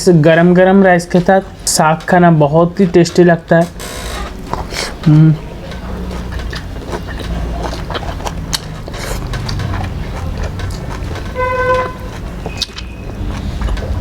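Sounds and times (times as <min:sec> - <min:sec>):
road traffic rumble: 0:03.2 - 0:14.0
vehicle horn: 0:11.3 - 0:12.2.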